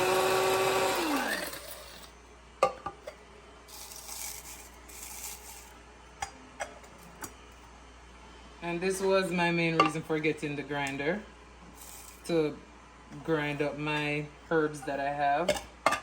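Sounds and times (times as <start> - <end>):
blade grinder motor winding down: 0.0 - 2.1.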